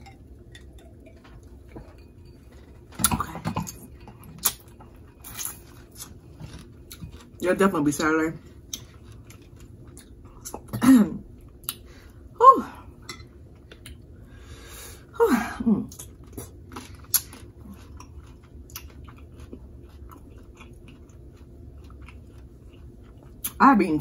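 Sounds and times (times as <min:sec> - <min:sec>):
chewing and wet mouth clicks: 0:04.4 - 0:04.7, 0:15.9 - 0:23.6.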